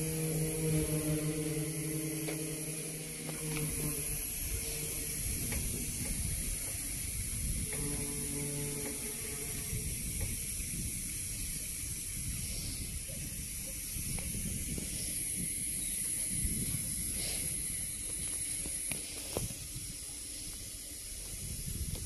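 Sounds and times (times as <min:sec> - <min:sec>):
freight train wheels rumbling: 0:00.0 - 0:13.2
high hiss: 0:00.0 - 0:22.0.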